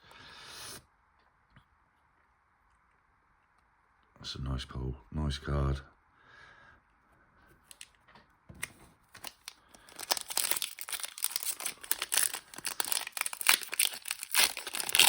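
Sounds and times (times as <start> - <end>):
foil wrapper crinkling: 9.1 - 15.0.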